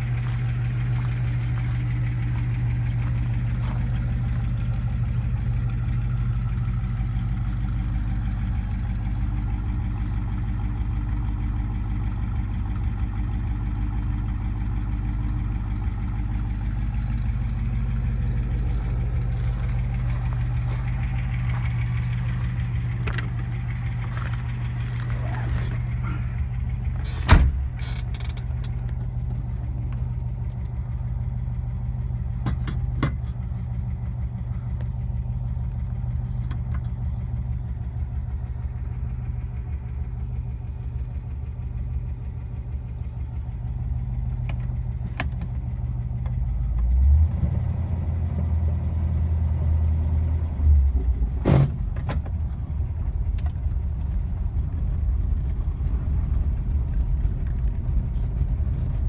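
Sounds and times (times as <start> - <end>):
car engine idling: 0.0 - 59.0
sharp thump: 27.1 - 27.8, 51.4 - 52.2.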